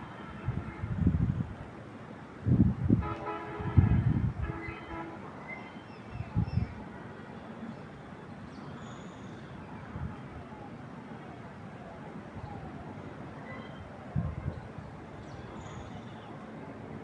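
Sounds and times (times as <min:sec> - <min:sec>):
wind gusts on microphone: 0:00.3 - 0:01.8, 0:02.4 - 0:05.0, 0:06.1 - 0:06.8, 0:14.0 - 0:15.5
vehicle horn: 0:03.0 - 0:05.2.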